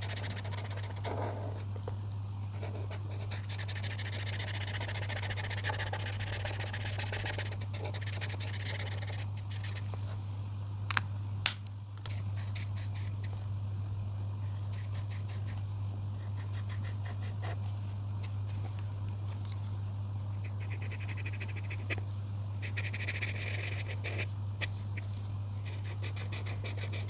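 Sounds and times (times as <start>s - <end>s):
coloring strokes scratching paper: 0.0s - 1.7s, 2.6s - 9.9s, 12.1s - 13.3s, 14.6s - 15.6s, 16.2s - 17.6s, 20.5s - 27.0s.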